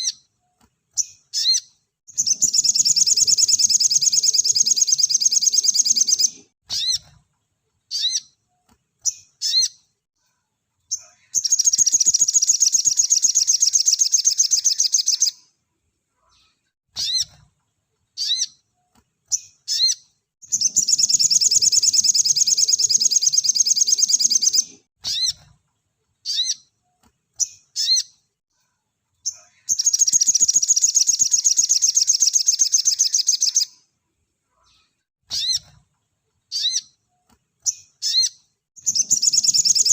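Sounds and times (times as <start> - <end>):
bird chirps and fast trills: 1.0 - 7.1, 11.4 - 15.3, 19.3 - 25.4, 29.7 - 33.7, 37.7 - 39.9.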